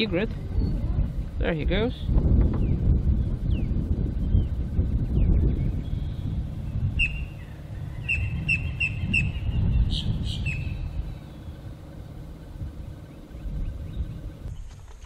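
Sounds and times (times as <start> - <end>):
low rumble: 0.0 - 14.9
small bird chirping: 2.6 - 11.7.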